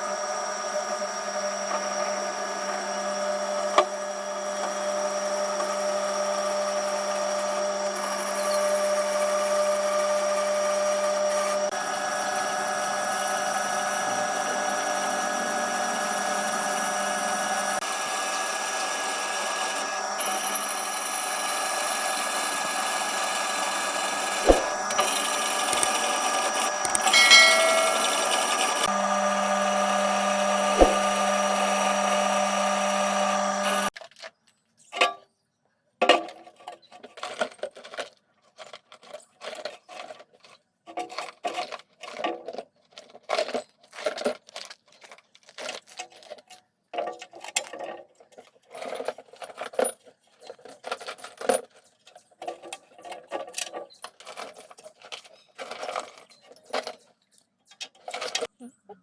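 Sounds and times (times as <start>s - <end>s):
small motor whirring: 0.0s - 34.0s.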